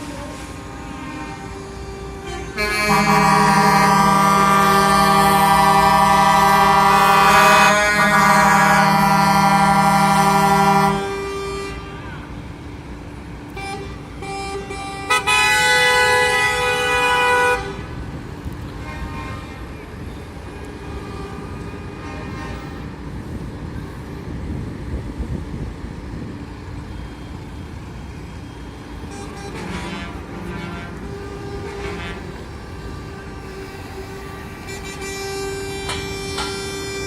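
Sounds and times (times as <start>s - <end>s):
truck air horn blasts: 0.0s - 12.6s, 13.5s - 18.1s, 18.8s - 23.0s, 29.0s - 37.0s.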